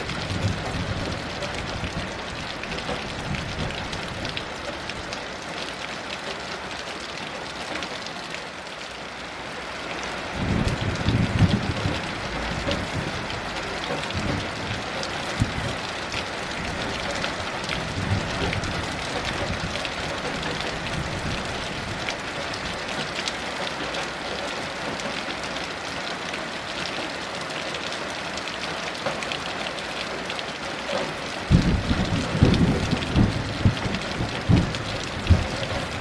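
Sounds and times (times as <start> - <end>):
thunder rumbling: 0.0 - 4.4, 10.4 - 15.8, 17.7 - 22.0, 31.5 - 36.0
heavy rain falling: 0.0 - 36.0.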